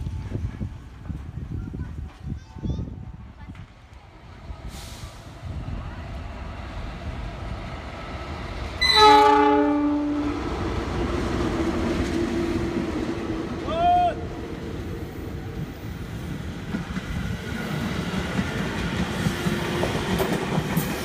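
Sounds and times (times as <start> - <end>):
train rumbling past: 0.0 - 21.0
train horn: 8.8 - 10.4.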